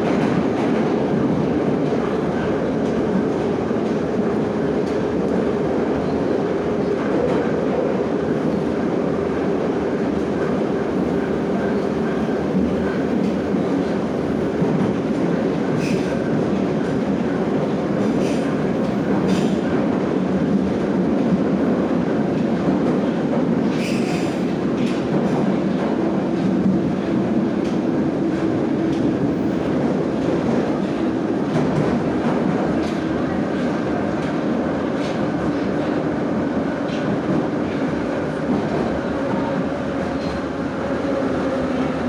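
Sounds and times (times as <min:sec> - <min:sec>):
train rumbling through tunnel: 0:00.0 - 0:42.0.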